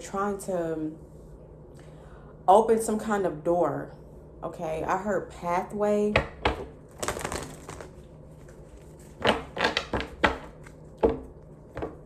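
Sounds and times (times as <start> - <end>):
rustling handling noise: 6.9 - 9.2.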